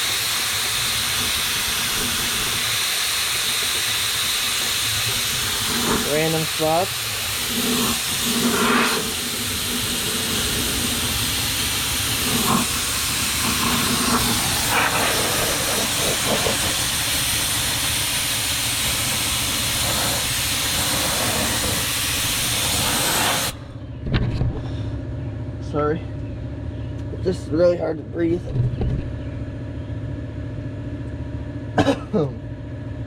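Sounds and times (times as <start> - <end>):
air spray gun hissing: 0.0 - 23.7.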